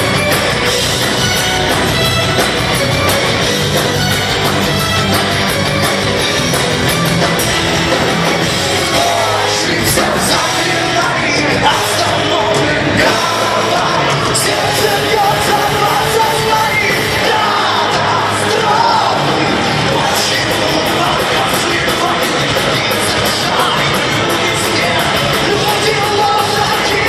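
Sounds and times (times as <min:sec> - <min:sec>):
power metal band playing live: 0:00.0 - 0:27.0
person singing: 0:08.8 - 0:27.0.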